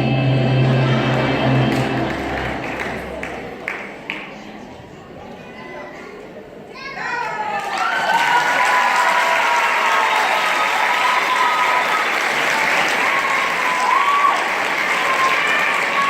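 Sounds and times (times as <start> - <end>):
audience applauding: 0.7 - 4.3, 7.5 - 16.0.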